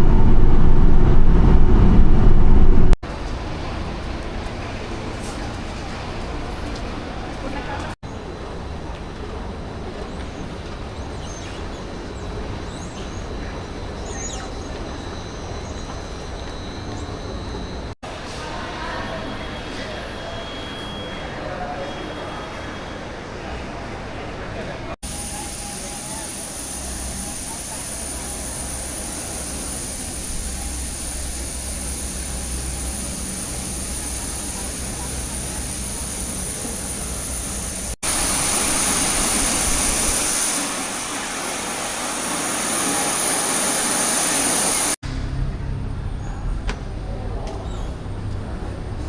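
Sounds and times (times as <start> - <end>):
vehicle cabin rumble: 0.0 - 3.0
moving train rumbling: 0.0 - 19.6, 24.4 - 49.0.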